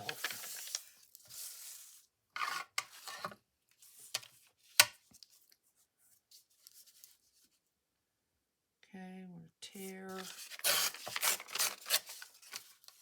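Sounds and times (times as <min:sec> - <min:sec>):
paper rustling: 0:00.0 - 0:02.0, 0:09.8 - 0:13.0.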